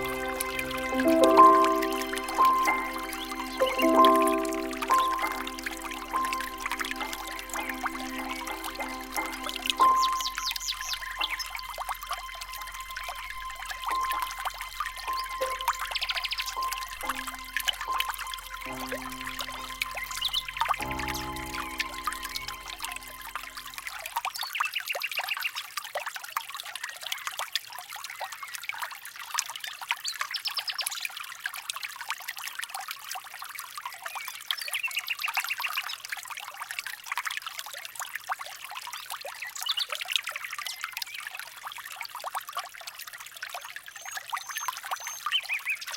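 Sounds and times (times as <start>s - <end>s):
small birds chirping chorus: 0.0s - 12.3s, 13.3s - 23.4s, 43.8s - 45.9s
music track: 0.0s - 24.2s.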